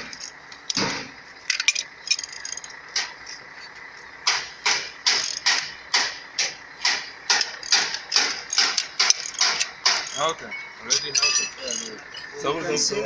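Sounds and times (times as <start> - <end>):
ratchet clicking: 0.0 - 3.1, 4.3 - 10.3, 11.0 - 12.1.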